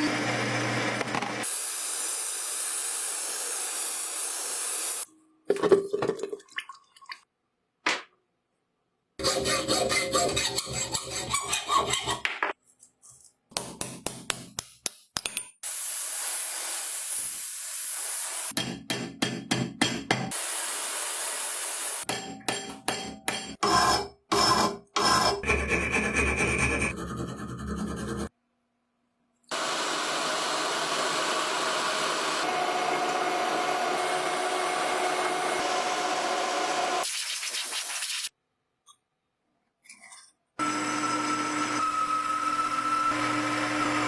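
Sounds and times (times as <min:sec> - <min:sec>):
rubbing and scraping: 0:25.1 - 0:28.3.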